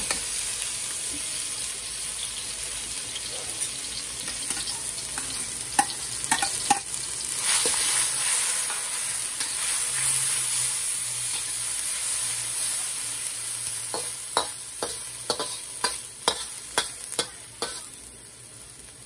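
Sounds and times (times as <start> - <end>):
vegetables sizzling in hot oil: 0.0 - 19.0
metal spatula scraping a wok: 4.4 - 18.0.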